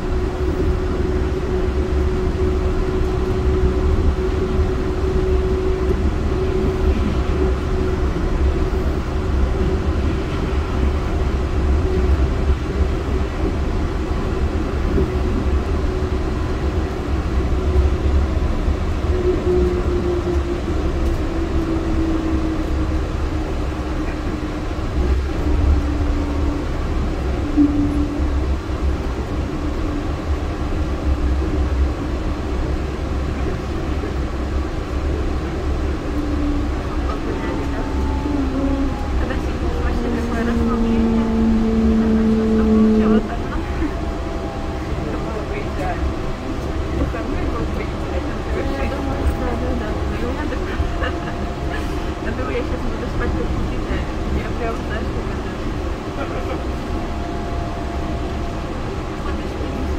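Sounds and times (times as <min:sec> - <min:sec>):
train low rumble: 0:00.0 - 0:59.9
train whine: 0:00.0 - 0:59.9.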